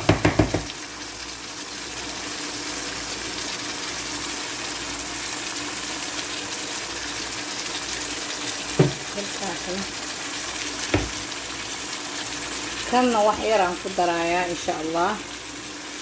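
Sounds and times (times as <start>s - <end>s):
sharp knocks: 0.0s - 0.7s
food sizzling in a pan: 0.0s - 16.0s.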